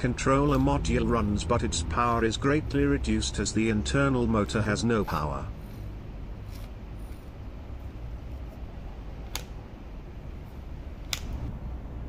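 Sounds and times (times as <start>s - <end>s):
low hum: 0.0s - 12.0s
sharp clicks: 9.2s - 9.6s, 11.0s - 11.5s.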